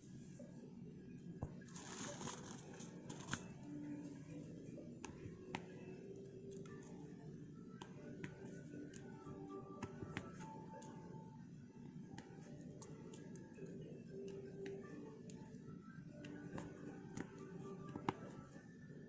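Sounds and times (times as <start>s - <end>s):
hands rustling craft items: 1.4s - 4.3s.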